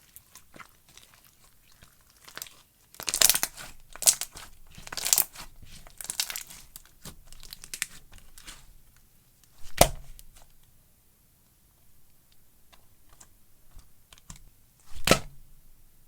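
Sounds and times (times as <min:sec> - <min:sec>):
slime crackling and tearing: 0:00.0 - 0:08.6
sharp slime crack: 0:02.1 - 0:05.4, 0:06.0 - 0:08.6.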